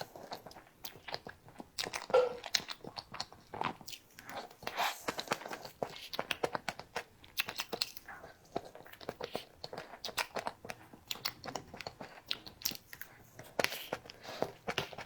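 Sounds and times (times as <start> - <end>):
wet mouth clicks and smacks: 0.2 - 8.1.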